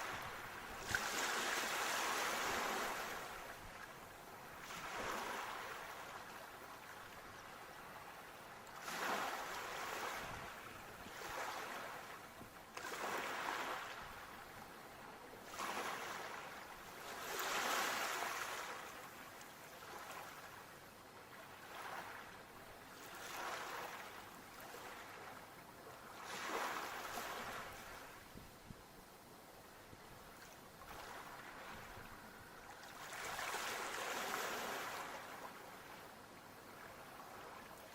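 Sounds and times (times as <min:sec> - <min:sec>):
sea waves washing in: 0:00.0 - 0:03.7, 0:15.4 - 0:19.1, 0:30.2 - 0:37.9.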